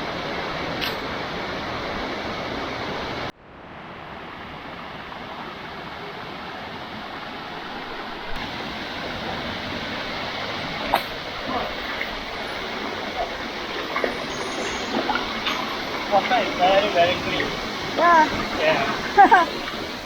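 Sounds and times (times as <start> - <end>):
waterfall rushing: 4.0 - 20.0.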